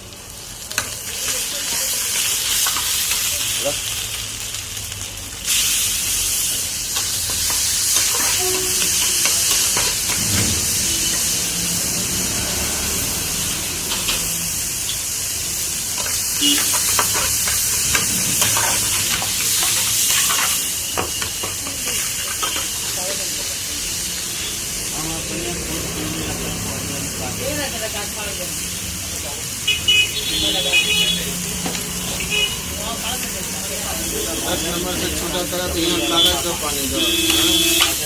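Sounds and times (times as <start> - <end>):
food sizzling in a pan: 0.0 - 38.0
metal ladle scraping pan: 7.9 - 11.4, 16.0 - 20.6.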